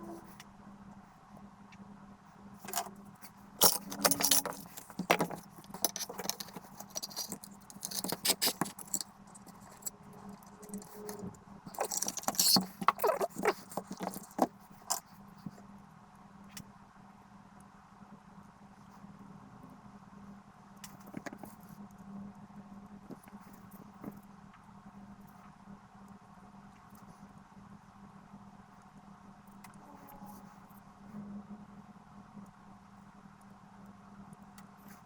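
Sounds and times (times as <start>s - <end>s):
faint low hum: 0.0s - 35.0s
small hard objects clicking: 3.6s - 15.0s.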